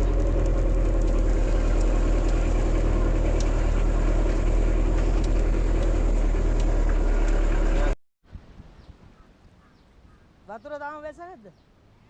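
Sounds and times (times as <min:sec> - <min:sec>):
vehicle engine idling: 0:00.0 - 0:08.0.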